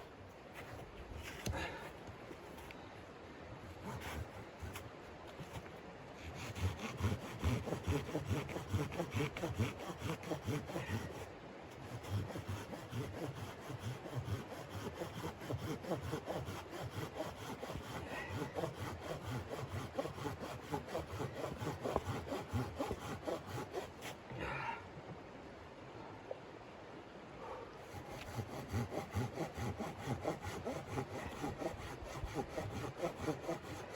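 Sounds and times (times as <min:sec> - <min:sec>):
hand saw cutting wood: 0:03.7 - 0:05.6, 0:06.2 - 0:24.2, 0:27.8 - 0:33.9.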